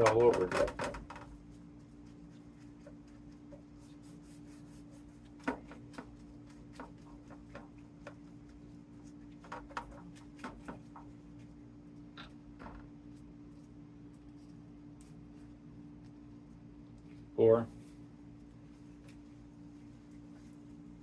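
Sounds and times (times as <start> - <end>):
steady low hum: 0.0 - 21.0
brushing butter over pastry sheets: 1.2 - 12.1.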